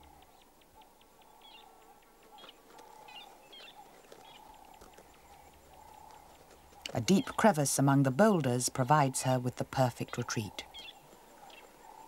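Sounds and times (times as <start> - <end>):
faint regular ticking: 0.1 - 7.0.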